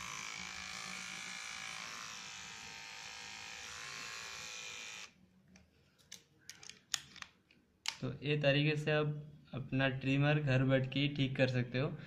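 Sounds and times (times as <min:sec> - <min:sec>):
hair trimmer motor buzzing: 0:00.0 - 0:05.2.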